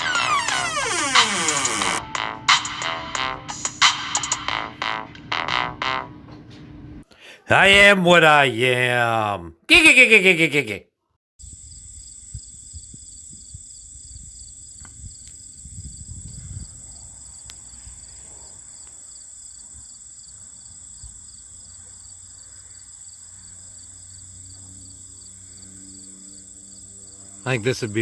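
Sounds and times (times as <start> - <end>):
insects chirring: 0.0 - 2.0, 11.4 - 28.0.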